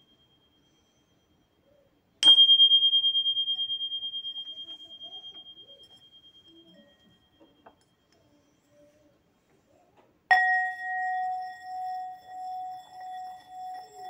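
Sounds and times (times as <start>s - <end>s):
small bell ringing clear high tone: 0.0s - 9.0s, 10.3s - 14.0s.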